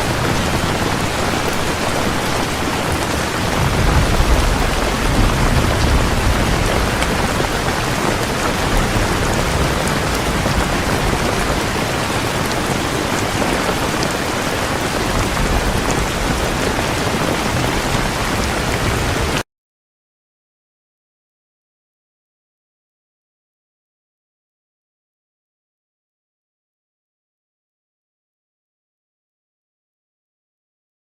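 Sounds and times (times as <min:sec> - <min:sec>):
heavy rain pouring: 0:00.0 - 0:19.4.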